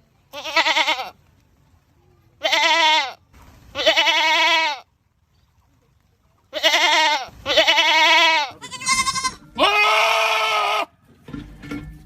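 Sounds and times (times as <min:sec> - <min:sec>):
goat bleating: 0:00.3 - 0:01.2, 0:02.4 - 0:04.9, 0:06.5 - 0:11.0.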